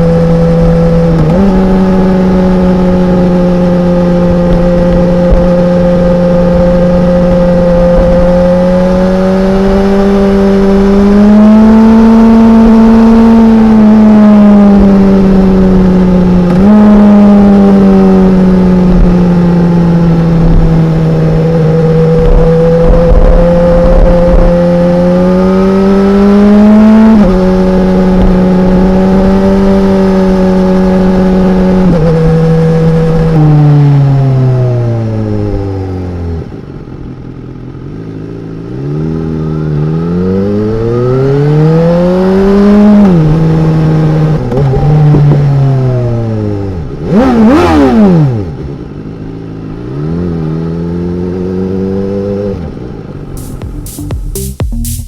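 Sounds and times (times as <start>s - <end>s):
motorcycle engine running loud: 0.0s - 33.6s.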